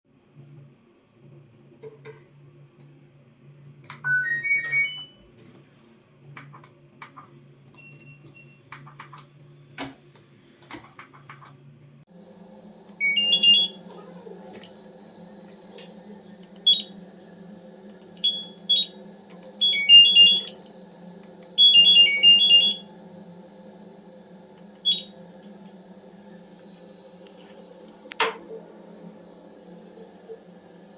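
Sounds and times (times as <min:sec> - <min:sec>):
washing machine low hum: 0:00.2 - 0:30.9
washing machine beeps: 0:04.0 - 0:05.3, 0:07.7 - 0:08.8, 0:13.0 - 0:23.4, 0:24.8 - 0:25.5.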